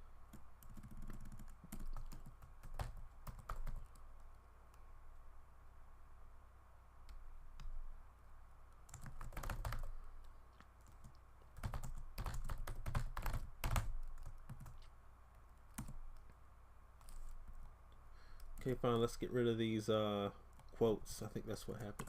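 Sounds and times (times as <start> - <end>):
typing on keyboard: 0.3 - 4.0, 8.9 - 9.9, 10.8 - 14.8, 15.7 - 16.2.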